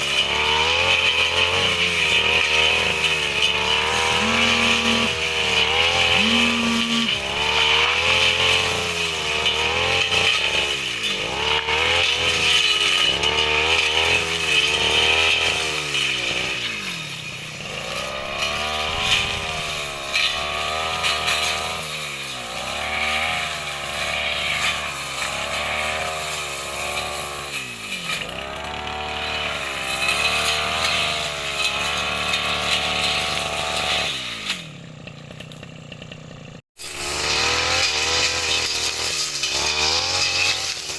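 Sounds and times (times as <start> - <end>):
brush cutter engine revving: 0.0 - 40.9.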